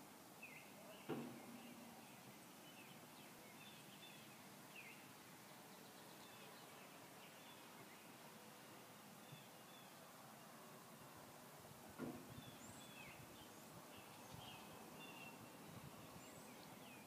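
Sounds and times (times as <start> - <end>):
faint birds chirping: 0.3 - 17.0
soft thump: 12.0 - 12.3.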